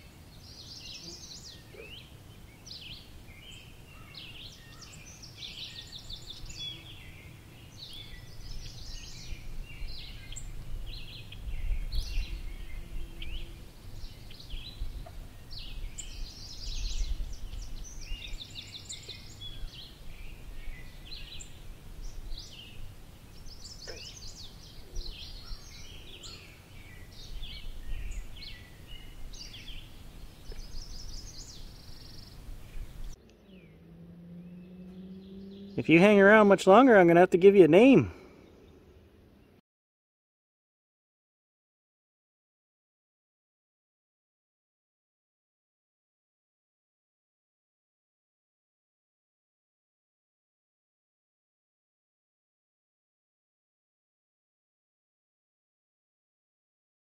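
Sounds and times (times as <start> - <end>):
songbirds chirping: 0.0 - 39.6.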